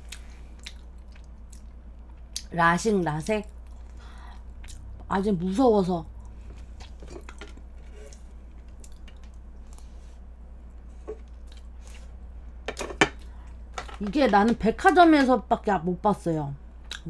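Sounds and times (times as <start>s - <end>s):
person chewing: 0.0s - 2.4s, 6.2s - 10.0s, 11.1s - 12.2s.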